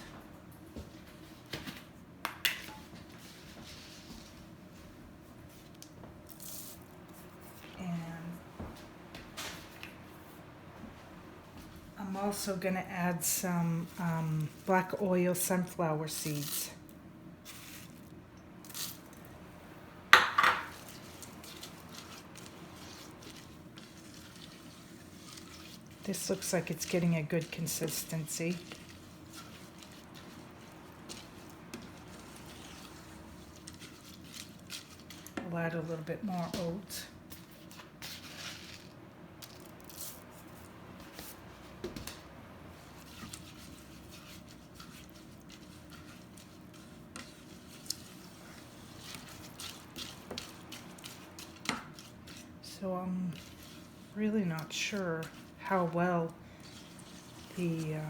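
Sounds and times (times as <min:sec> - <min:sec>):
oats stirred into thick mixture: 0:00.1 - 0:08.2, 0:10.9 - 0:19.4, 0:20.1 - 0:58.0
scraping and rustling: 0:20.4 - 0:58.0.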